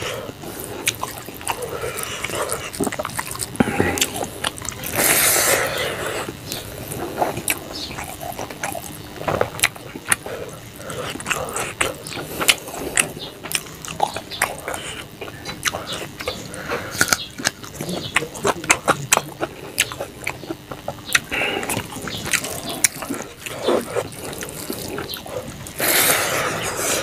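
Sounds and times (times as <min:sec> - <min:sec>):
wet chewing smacks: 0:00.0 - 0:27.0.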